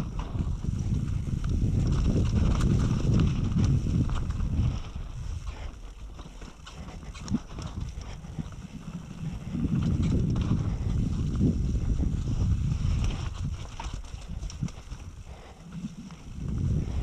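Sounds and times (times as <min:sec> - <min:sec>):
bike rattling over rocky ground: 0:00.0 - 0:17.0
wind buffeting microphone: 0:00.0 - 0:17.0.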